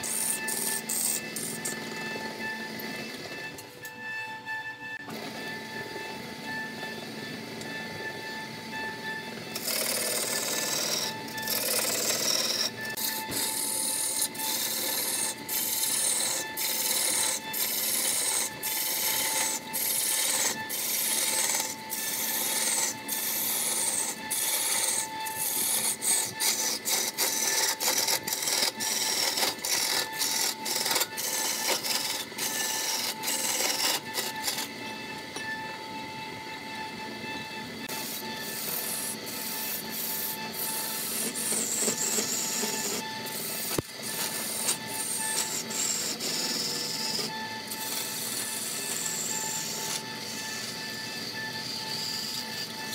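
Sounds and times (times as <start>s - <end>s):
gouge rasping on spinning wood: 0.0s - 2.2s, 9.6s - 34.7s, 37.9s - 51.0s
lathe motor whine: 0.0s - 52.9s.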